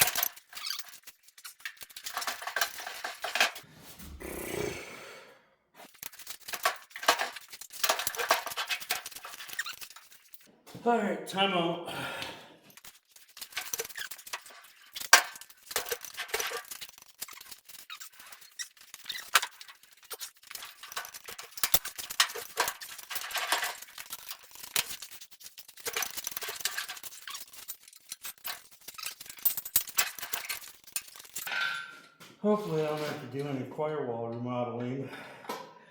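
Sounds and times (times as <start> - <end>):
metallic squeaks clinks and knocks: 0.0 - 3.6, 6.0 - 10.5, 12.8 - 32.2.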